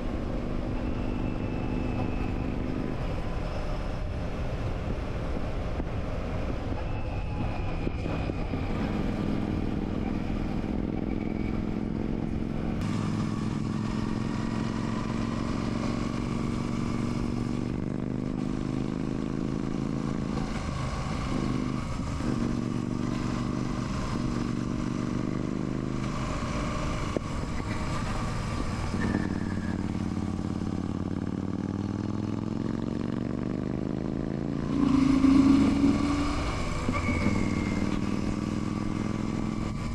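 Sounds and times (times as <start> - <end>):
motorcycle engine running: 8.8 - 39.9.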